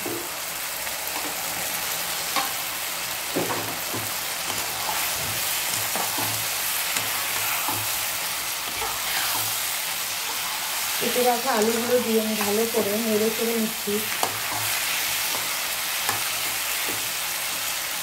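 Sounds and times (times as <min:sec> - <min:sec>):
vegetables sizzling in oil: 0:00.0 - 0:18.0
spatula scraping and knocking pan: 0:03.3 - 0:08.0, 0:08.6 - 0:09.6, 0:14.1 - 0:17.7.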